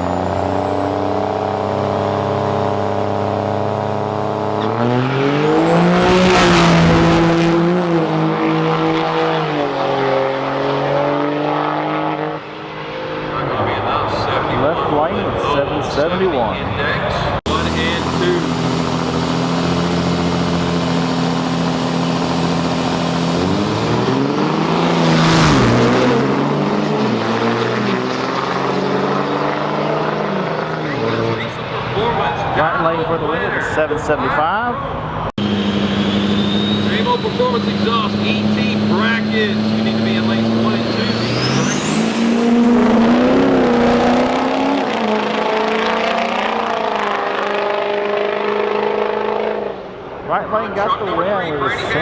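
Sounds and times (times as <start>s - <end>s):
diesel truck engines racing: 0.0s - 52.0s.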